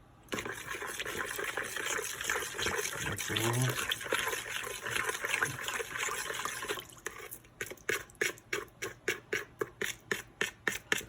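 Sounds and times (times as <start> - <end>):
liquid sloshing: 0.3 - 8.4.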